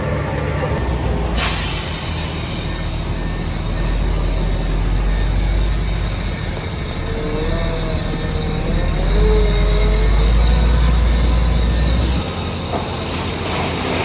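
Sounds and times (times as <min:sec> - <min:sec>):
diesel engine drone: 0:00.0 - 0:14.0
wavering whine: 0:02.6 - 0:12.5.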